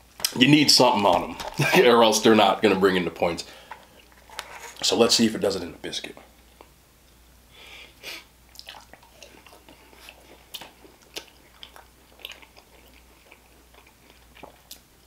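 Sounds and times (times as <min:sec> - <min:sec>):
mouth clicks and smacks chewing: 0:08.5 - 0:15.0.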